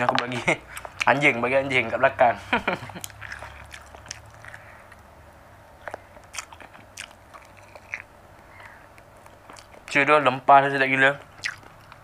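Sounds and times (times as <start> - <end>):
chewing meat on the bone: 0.2 - 1.4, 2.8 - 5.1, 5.8 - 10.0, 11.1 - 12.0.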